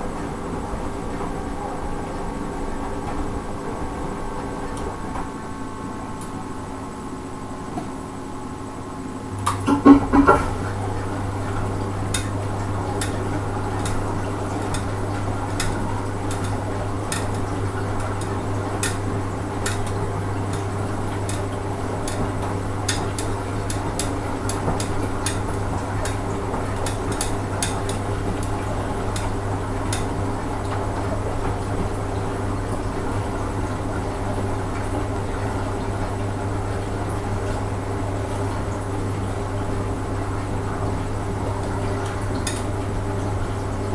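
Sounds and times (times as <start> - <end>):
washing machine hum: 0.0 - 43.9
clicks from turning drum: 12.1 - 30.2, 42.4 - 42.7.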